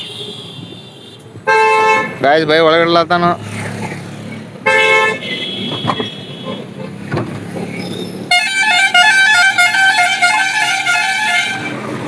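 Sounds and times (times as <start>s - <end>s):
vehicle horns honking: 0.0s - 2.2s, 4.6s - 7.0s, 7.8s - 12.0s.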